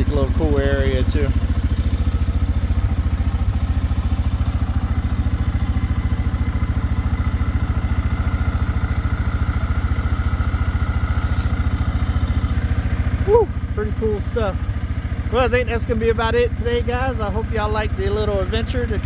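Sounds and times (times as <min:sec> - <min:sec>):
atv engine running steadily: 0:00.0 - 0:19.0.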